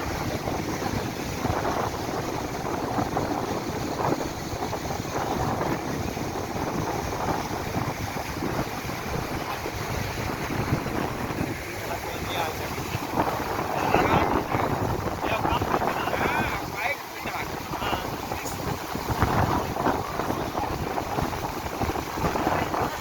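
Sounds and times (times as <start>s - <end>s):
floodwater rushing: 0.0s - 23.0s
wind buffeting microphone: 0.0s - 23.0s.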